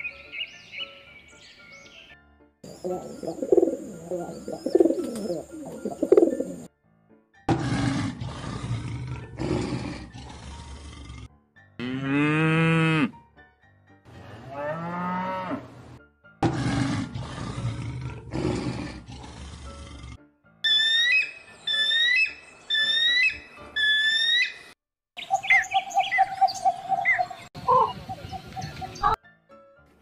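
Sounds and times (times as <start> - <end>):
pigeons cooing: 2.7 - 6.7
lions grunting: 7.5 - 11.3, 16.4 - 20.2
lions roaring: 7.5 - 11.3, 16.4 - 20.2.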